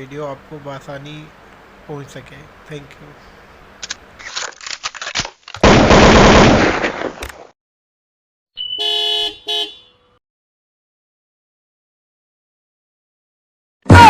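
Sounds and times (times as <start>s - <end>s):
loud rattling noise burst: 5.6s - 6.9s
horn-like honk: 8.6s - 10.2s.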